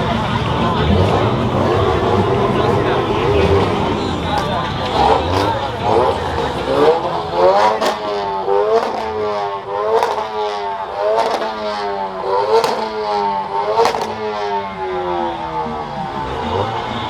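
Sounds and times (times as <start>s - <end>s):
car engine revving: 0.0s - 17.0s
sharp crack at rev peak: 7.5s - 14.6s.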